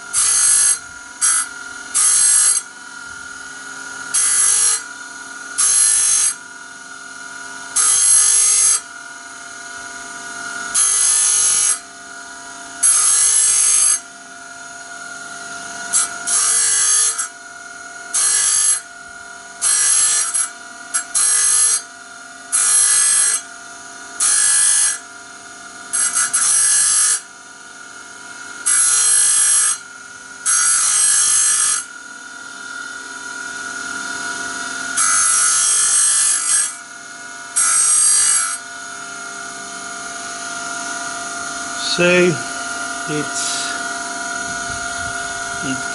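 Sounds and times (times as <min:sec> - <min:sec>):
power grinder grinding steel: 0:00.0 - 0:45.9.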